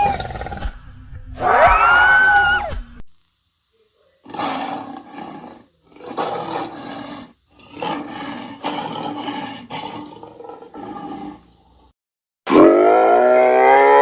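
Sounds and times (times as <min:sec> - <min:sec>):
large animal harsh calls: 0:04.2 - 0:11.9.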